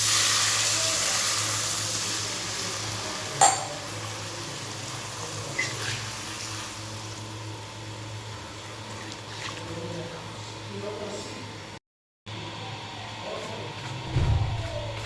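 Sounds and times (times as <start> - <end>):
food sizzling in a pan: 0.0 - 9.0
utensil clinking against pan: 3.4 - 3.8.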